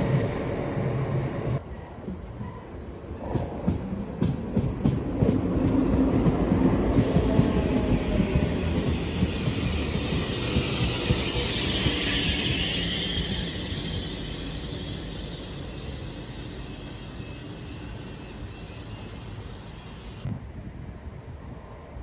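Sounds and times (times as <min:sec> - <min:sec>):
train wheels clicking over rails: 0:03.3 - 0:20.3
high wheel squeal: 0:05.8 - 0:20.3.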